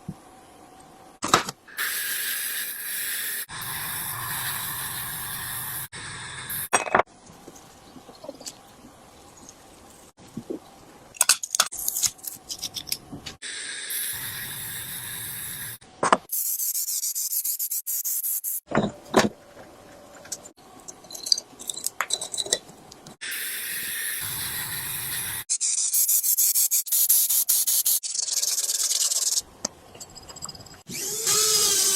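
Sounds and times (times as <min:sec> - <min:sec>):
steady hiss: 0:01.7 - 0:06.7.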